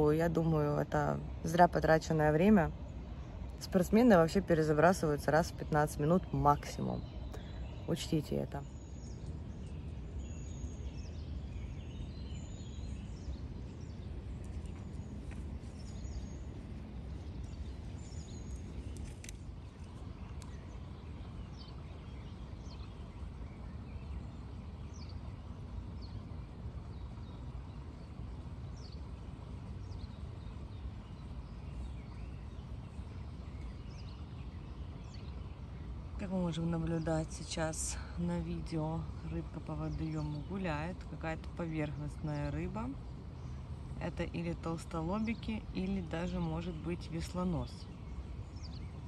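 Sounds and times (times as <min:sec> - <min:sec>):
low background rumble: 0:00.0 - 0:49.0.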